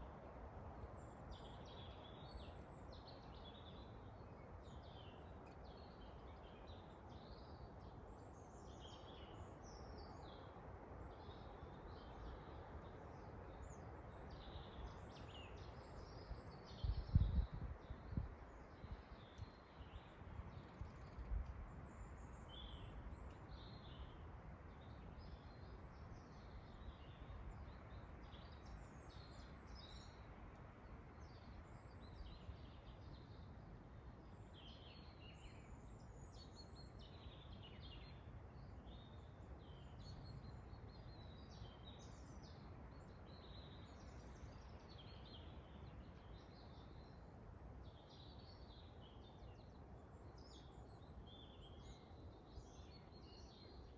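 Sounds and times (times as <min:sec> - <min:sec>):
low wind rumble: 0:16.8 - 0:23.1.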